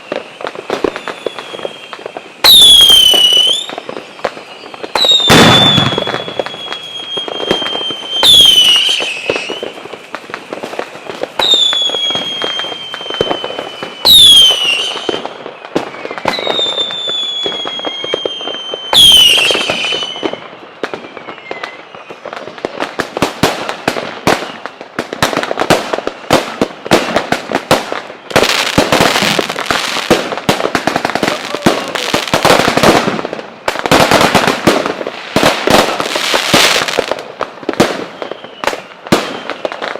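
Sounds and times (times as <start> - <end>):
firework bangs: 0.0 - 39.9
whistling fireworks: 0.0 - 39.9.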